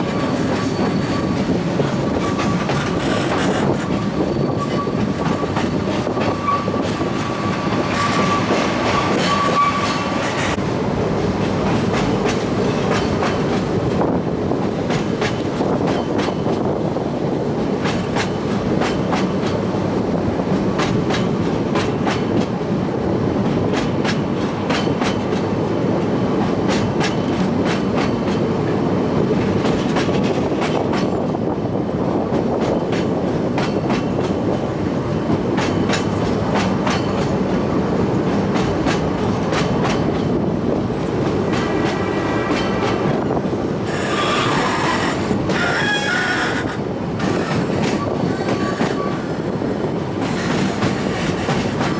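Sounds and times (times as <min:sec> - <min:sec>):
train wheels clicking over rail joints: 0:00.0 - 0:10.6, 0:11.2 - 0:16.8, 0:17.6 - 0:22.6, 0:23.4 - 0:31.4, 0:32.2 - 0:51.9
high wheel squeal: 0:06.3 - 0:10.2, 0:43.8 - 0:51.8.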